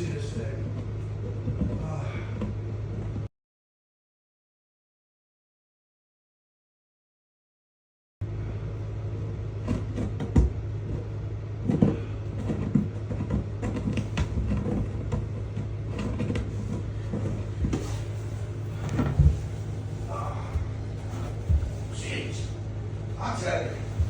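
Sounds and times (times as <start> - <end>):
steady low hum: 0.0 - 3.3, 8.2 - 24.0.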